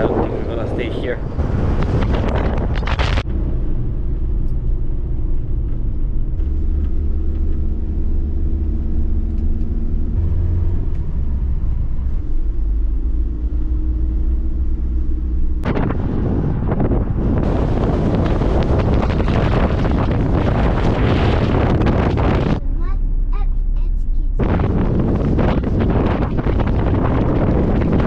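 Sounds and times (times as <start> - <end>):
wind buffeting microphone: 0.0 - 7.7, 13.7 - 23.0, 24.4 - 28.0
engine and road rumble: 0.0 - 28.0.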